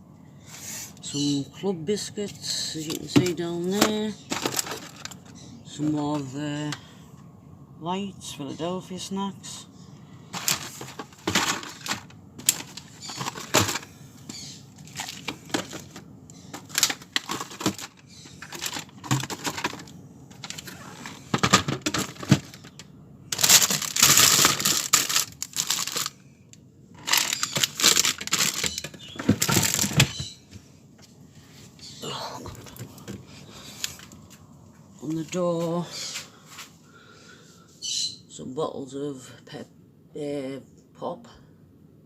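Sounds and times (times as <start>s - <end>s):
food packages handled in fridge: 2.2s - 6.8s, 10.3s - 26.2s, 27.0s - 36.7s
plastic packaging crinkling: 2.9s - 5.3s, 10.4s - 26.2s, 27.0s - 30.4s.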